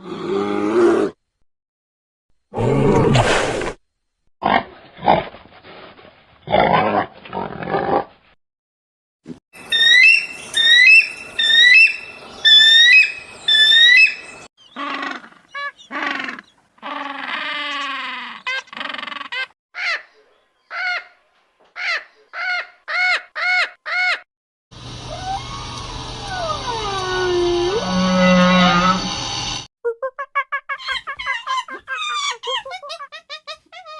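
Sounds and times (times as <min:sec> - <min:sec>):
animal chirps and squawks: 0:09.7 - 0:21.2, 0:29.9 - 0:33.9.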